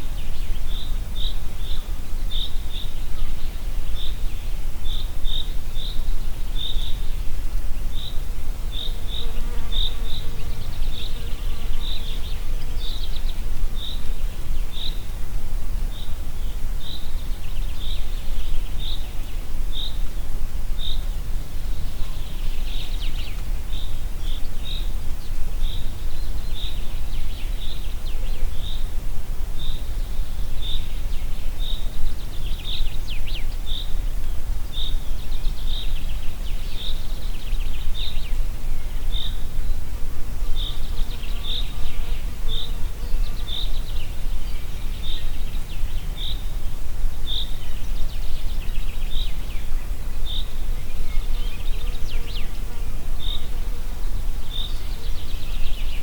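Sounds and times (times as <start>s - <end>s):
wind through forest: 0.0s - 56.0s
birdsong: 7.8s - 15.1s, 21.7s - 29.0s, 29.6s - 39.5s, 40.4s - 56.0s.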